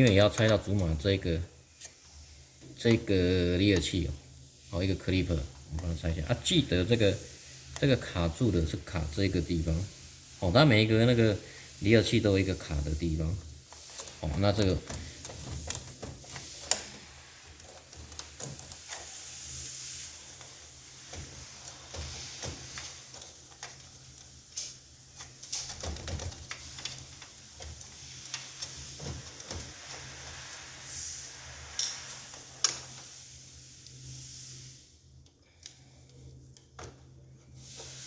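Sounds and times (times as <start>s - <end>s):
hands clicking and tapping parts: 0.0s - 1.0s, 13.6s - 19.2s, 20.2s - 30.7s, 35.2s - 37.2s.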